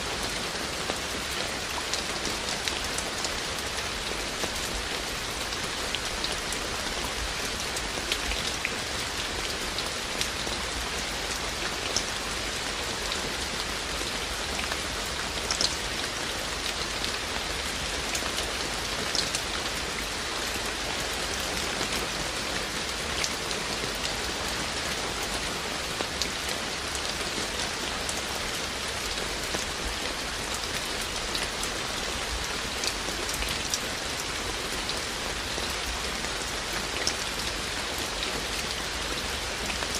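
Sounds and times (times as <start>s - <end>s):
steady rain falling: 0.0s - 39.9s
raindrops ticking on surface: 0.1s - 39.9s.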